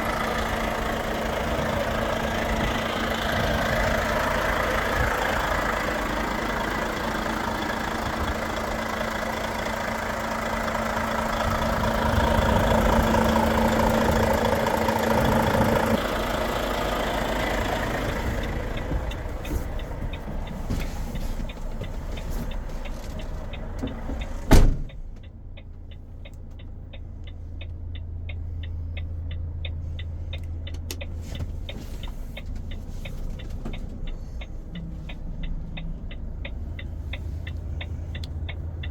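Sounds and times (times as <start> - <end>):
diesel engine running: 0.0 - 38.9
evenly spaced ticks: 25.2 - 38.9.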